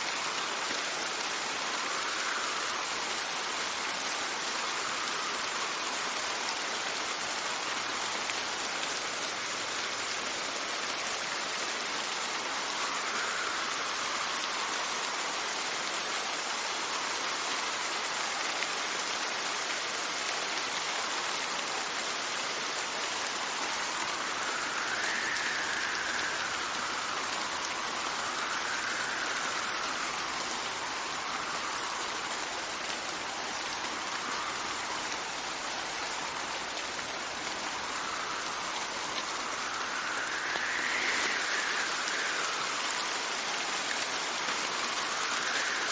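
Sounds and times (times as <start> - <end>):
steady rain falling: 0.0 - 45.9
wind whistling: 11.8 - 15.1, 22.9 - 45.9
wind gusting: 23.2 - 43.5.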